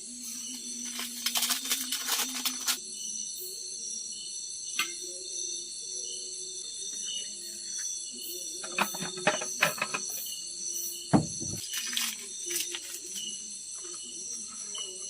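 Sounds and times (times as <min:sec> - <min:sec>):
crickets and insects chirping: 0:00.0 - 0:15.0
close clicks and knocks: 0:08.6 - 0:10.2, 0:11.2 - 0:11.6
heavy low thump: 0:11.2 - 0:11.6.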